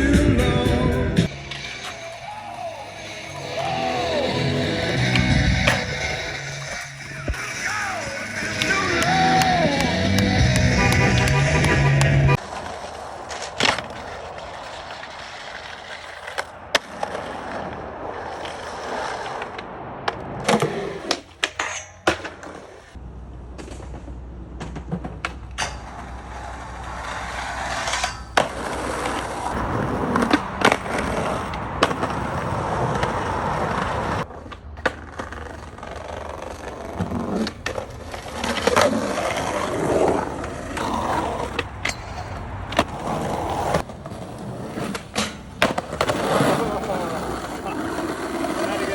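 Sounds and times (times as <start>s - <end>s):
skateboard wheels rolling: 0.0s - 48.9s
skateboard clacking on landing: 1.5s - 17.8s.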